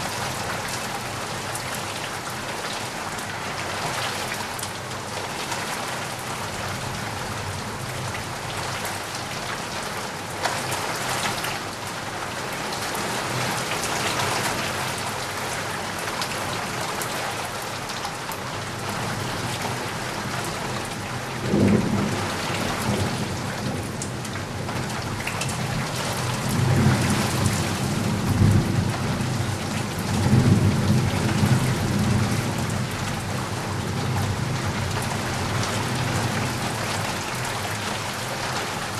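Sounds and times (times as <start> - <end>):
steady rain falling: 0.0 - 38.9
low rolling thunder: 21.3 - 24.2, 25.6 - 37.1.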